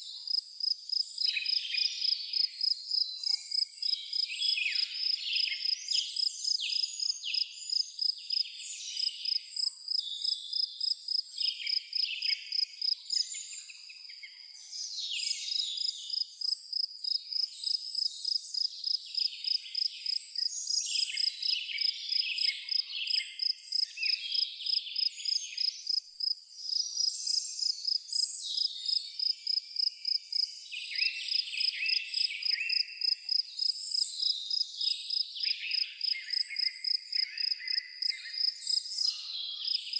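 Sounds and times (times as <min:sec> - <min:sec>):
cricket chirping: 0:00.3 - 0:07.1, 0:07.7 - 0:08.4, 0:09.2 - 0:14.2, 0:15.8 - 0:39.9
birds singing: 0:17.2 - 0:39.9.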